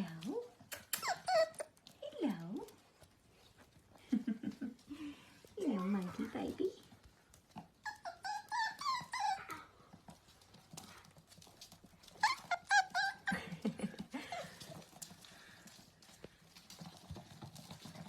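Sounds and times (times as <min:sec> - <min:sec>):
dog whining with high-pitched yelps: 0:00.7 - 0:01.8, 0:07.8 - 0:09.8, 0:12.1 - 0:13.4.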